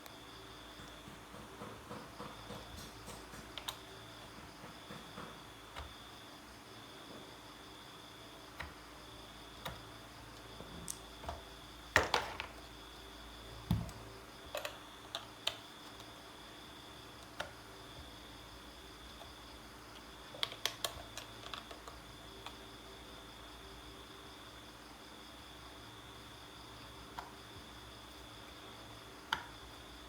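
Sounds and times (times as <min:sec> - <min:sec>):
small parts and tools clicking: 0:13.8 - 0:16.1, 0:19.9 - 0:22.6.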